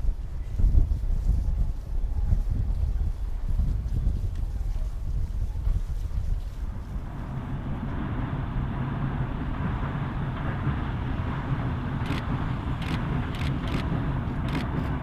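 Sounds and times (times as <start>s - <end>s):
train rumbling past: 5.0s - 15.0s
sharp clicks: 12.0s - 14.8s.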